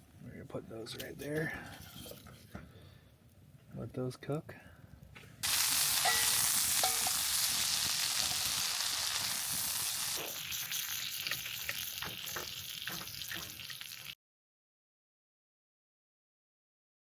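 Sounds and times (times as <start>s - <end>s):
food sizzling in butter: 5.4s - 14.2s
pops and crackles: 9.2s - 14.1s.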